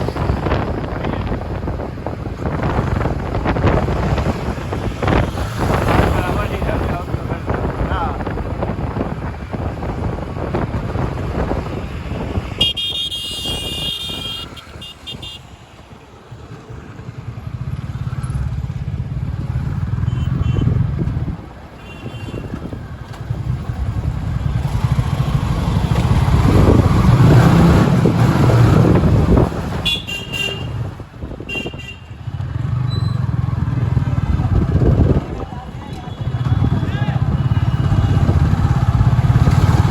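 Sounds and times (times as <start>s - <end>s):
passing vehicle engines: 0.0s - 39.9s
car horns honking: 12.1s - 15.6s, 20.0s - 20.8s, 21.8s - 22.6s, 29.7s - 32.2s.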